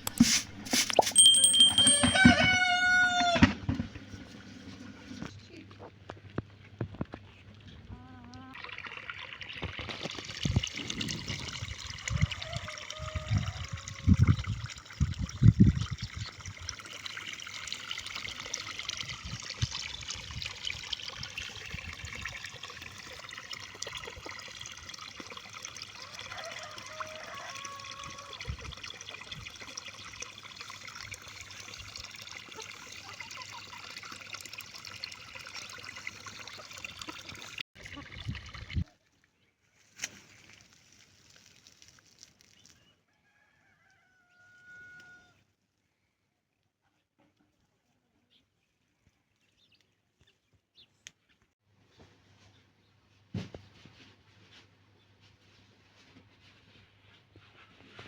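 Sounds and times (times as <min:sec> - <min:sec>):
trickle of running water: 0:00.0 - 0:03.4, 0:08.5 - 0:39.2, 0:39.8 - 0:42.8.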